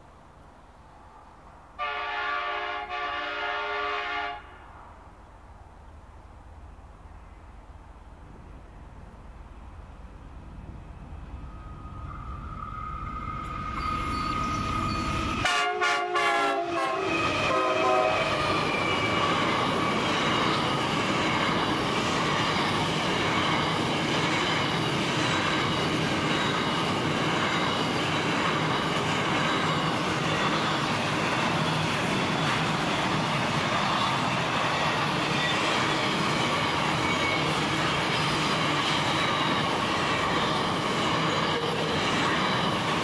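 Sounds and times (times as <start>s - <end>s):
locomotive horn blasts: 1.8s - 4.6s, 15.4s - 18.4s
wheels clacking over rail joints: 18.2s - 43.0s.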